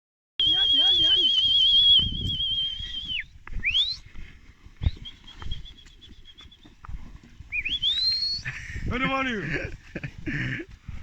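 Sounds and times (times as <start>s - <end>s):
person whistling: 0.4s - 4.0s, 4.8s - 6.7s, 7.5s - 8.5s.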